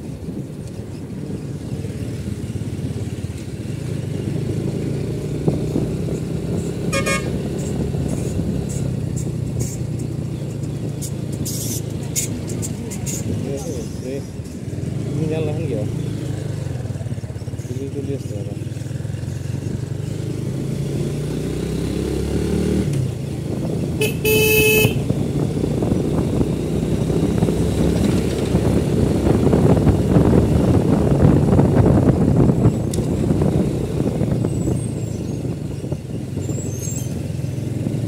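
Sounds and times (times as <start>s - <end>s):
vehicle engine and road noise: 0.0s - 38.0s
car horn honking: 6.9s - 7.4s, 24.0s - 25.1s.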